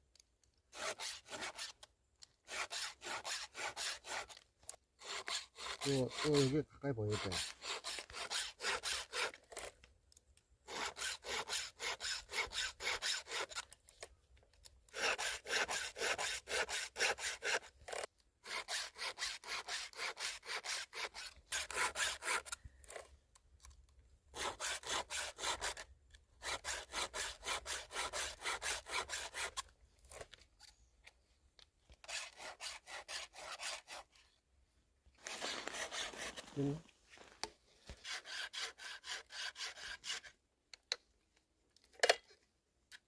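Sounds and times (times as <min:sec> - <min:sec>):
file scraping chainsaw chain: 0:00.7 - 0:09.9, 0:10.6 - 0:14.1, 0:14.9 - 0:23.2, 0:24.3 - 0:30.7, 0:31.9 - 0:34.3, 0:35.2 - 0:36.8, 0:37.9 - 0:40.4.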